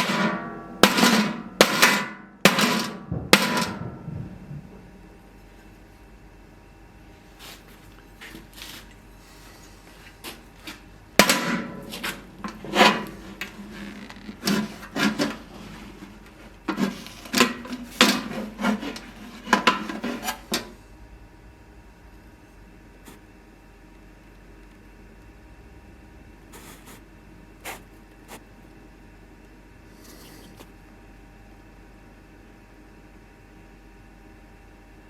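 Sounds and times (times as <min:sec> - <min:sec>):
hand tools knocking on metal: 0:00.0 - 0:04.6.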